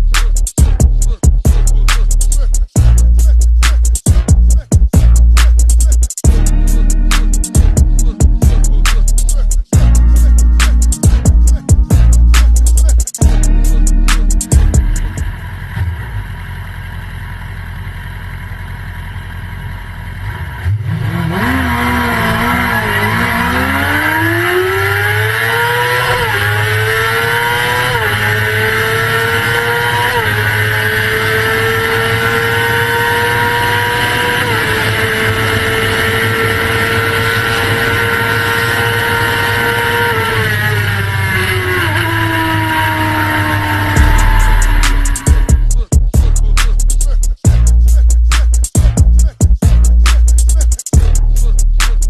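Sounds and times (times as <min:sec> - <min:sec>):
motorcycle engine accelerating: 0:06.2 - 0:46.8.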